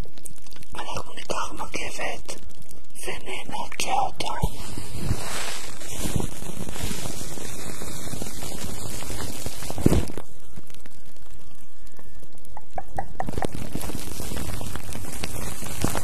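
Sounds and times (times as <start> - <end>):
towel rubbing against microphone: 4.2 - 10.2
loud scrape: 4.5 - 10.2.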